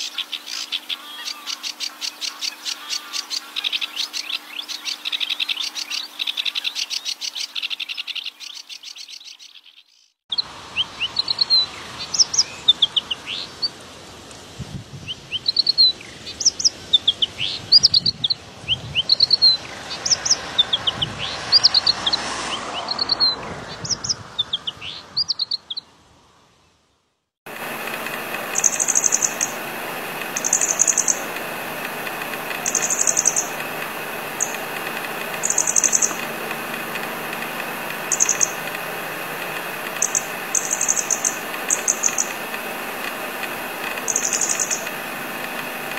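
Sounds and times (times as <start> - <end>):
bird buzzy trill: 27.5 - 45.9
steady drone: 27.5 - 45.9
bird whistled notes: 27.8 - 45.9.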